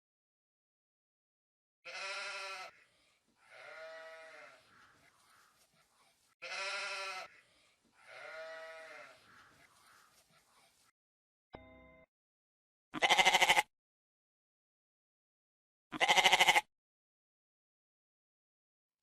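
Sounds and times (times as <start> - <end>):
animal bleating: 1.9 - 5.6, 6.4 - 10.1, 13.0 - 13.7, 15.9 - 16.7.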